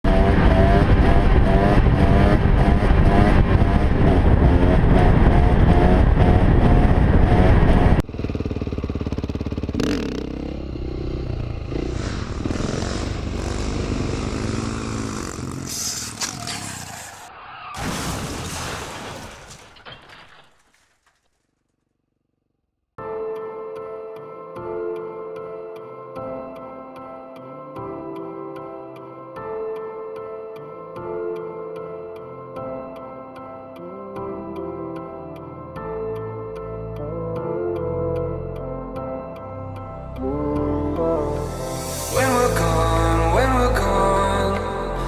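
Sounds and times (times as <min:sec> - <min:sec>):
engine with gliding pitch: 0:00.0 - 0:17.3
dirt bike engine revving: 0:00.1 - 0:17.3.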